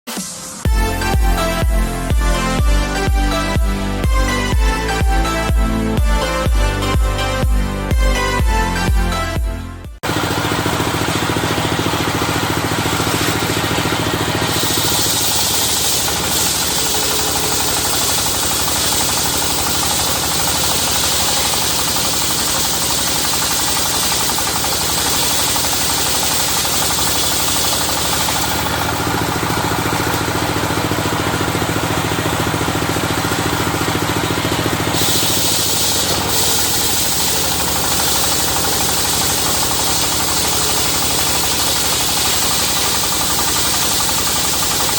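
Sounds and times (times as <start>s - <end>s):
knocking engine: 0.6s - 8.8s, 10.0s - 44.9s
saw blade ripping through log: 10.0s - 44.9s
loud high hiss: 32.8s - 44.9s.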